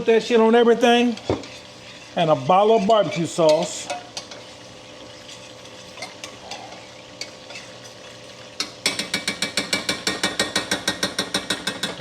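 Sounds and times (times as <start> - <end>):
faint frying sizzle: 0.0 - 12.0
spoon scraping pan: 0.8 - 10.2.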